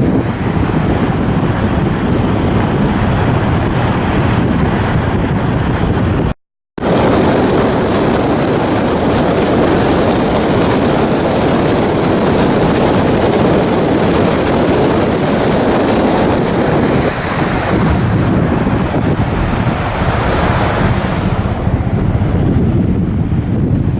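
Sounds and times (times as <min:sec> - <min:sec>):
wind buffeting microphone: 0:00.0 - 0:23.9
sea water rushing: 0:06.8 - 0:23.0.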